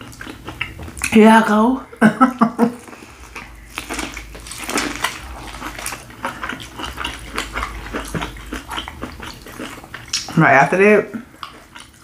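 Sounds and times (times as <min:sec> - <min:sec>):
biting and chewing corn: 0:03.2 - 0:10.3.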